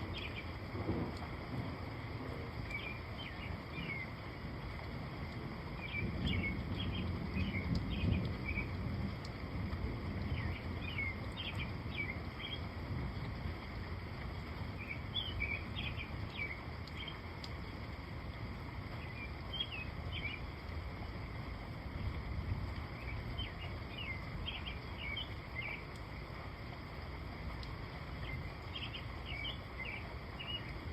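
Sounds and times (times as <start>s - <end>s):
small birds chirping: 0.0s - 0.6s, 10.3s - 12.6s, 14.8s - 17.2s, 23.0s - 26.0s, 28.2s - 30.8s
rain hissing: 0.0s - 30.9s.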